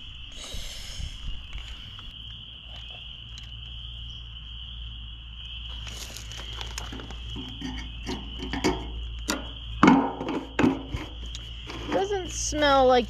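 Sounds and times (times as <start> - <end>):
insect chirring: 0.0 - 13.0
rustle: 5.7 - 7.8.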